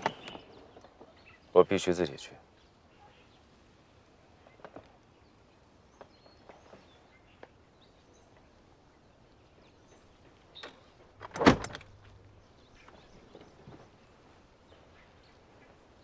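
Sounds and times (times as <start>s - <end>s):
faint bird chirps: 2.5s - 3.5s
car door slamming shut: 11.2s - 11.9s.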